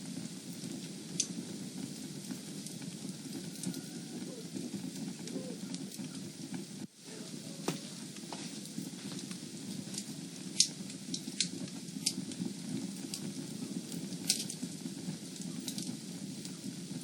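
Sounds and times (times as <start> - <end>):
fire popping: 0.0 - 17.0
fire rumbling: 0.0 - 17.0.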